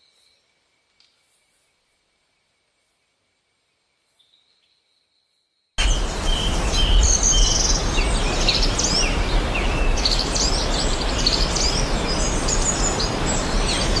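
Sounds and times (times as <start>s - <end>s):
birds chirping and calling: 5.8s - 14.0s
steady low rumble: 5.8s - 14.0s.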